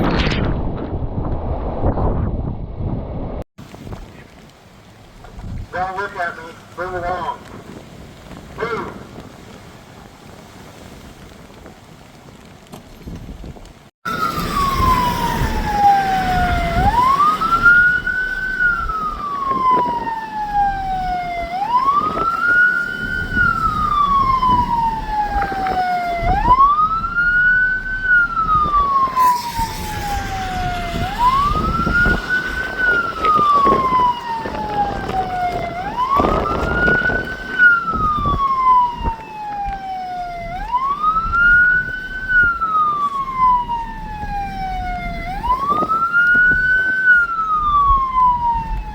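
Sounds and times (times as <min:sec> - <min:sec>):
low rushing noise: 0:00.0 - 0:03.4, 0:14.1 - 0:45.9
emergency siren wailing: 0:14.1 - 0:48.9.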